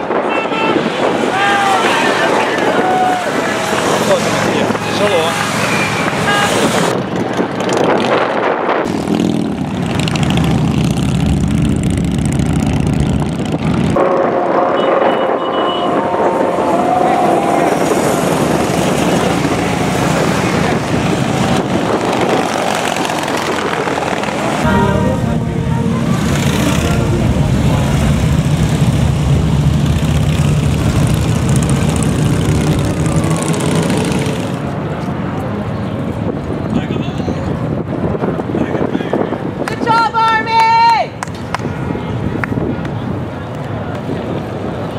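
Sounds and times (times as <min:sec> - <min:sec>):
motorcycles riding past: 0:01.0 - 0:07.8, 0:08.9 - 0:14.5, 0:15.9 - 0:35.7.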